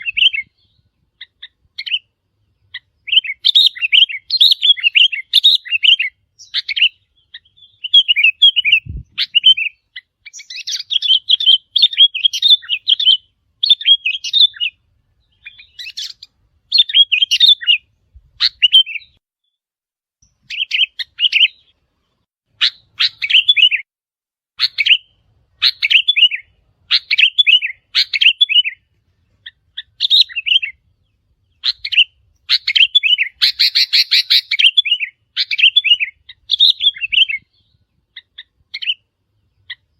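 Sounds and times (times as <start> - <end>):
bulbuls chirping: 0.0 - 19.2, 20.2 - 23.8, 24.6 - 39.9
harsh bird chattering: 25.6 - 28.8, 31.6 - 37.4.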